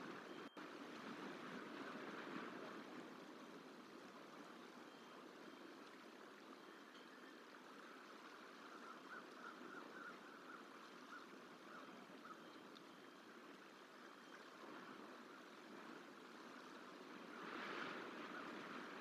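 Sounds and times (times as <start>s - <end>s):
faint running water: 0.0s - 19.0s
faint bird calls: 8.4s - 13.2s.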